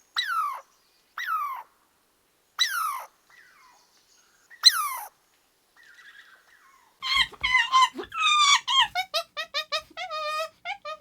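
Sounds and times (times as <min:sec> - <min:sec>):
animal squealing and yelping: 0:02.6 - 0:03.1, 0:04.6 - 0:05.1, 0:05.9 - 0:11.0.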